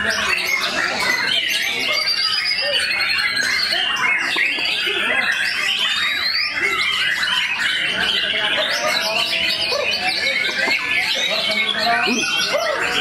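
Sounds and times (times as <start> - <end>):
birds singing whistles and trills: 0.0 - 13.0
human voices: 0.0 - 13.0.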